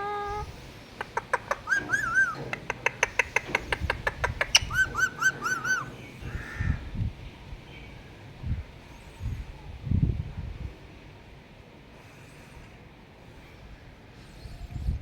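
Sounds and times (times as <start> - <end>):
parrot clicking: 1.0 - 5.2
parrot chirping: 1.0 - 6.0.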